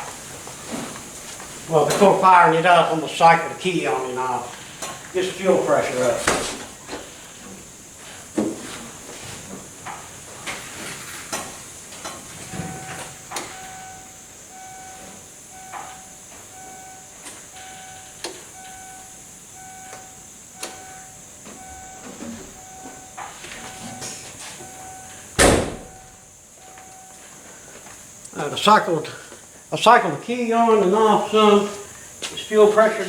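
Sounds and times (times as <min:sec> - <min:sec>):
car warning chime dinging: 0:12.2 - 0:27.5.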